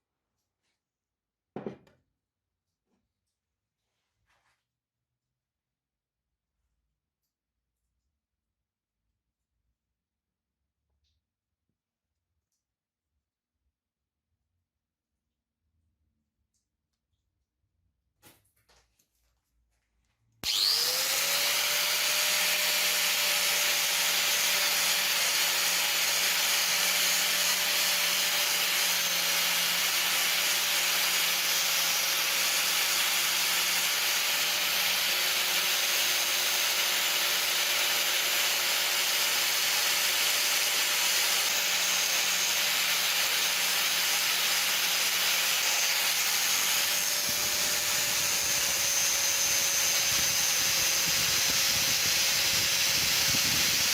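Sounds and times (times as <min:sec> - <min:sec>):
power tool motor spinning: 0:20.4 - 0:53.9
rough abrasive grinding: 0:20.4 - 0:53.9.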